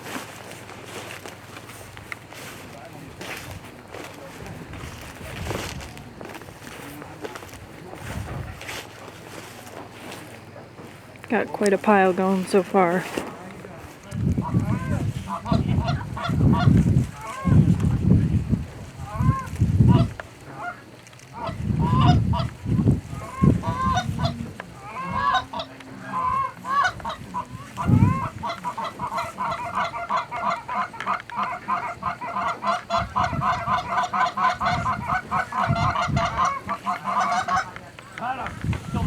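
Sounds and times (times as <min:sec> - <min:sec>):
geese honking: 0:00.0 - 0:39.0.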